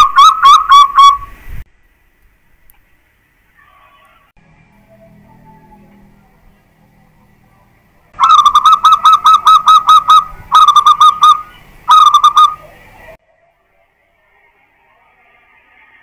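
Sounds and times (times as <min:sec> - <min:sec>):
dove cooing: 0:08.2 - 0:13.1.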